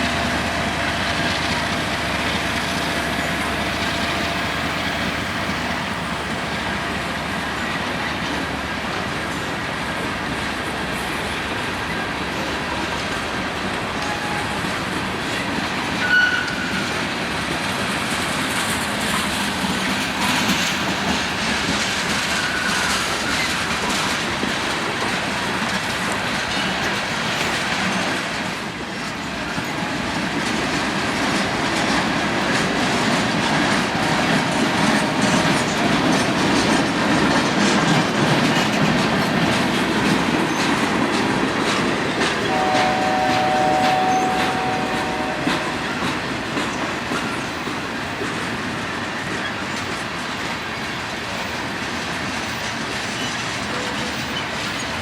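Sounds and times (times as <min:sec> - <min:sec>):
train wheels clacking: 0:00.0 - 0:55.0.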